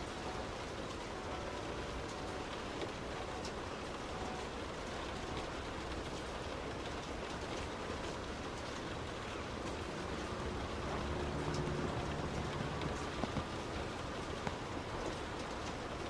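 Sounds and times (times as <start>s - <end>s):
heavy rain: 0.0s - 16.0s
tyres on wet road: 0.0s - 16.0s
low hum: 9.7s - 15.4s.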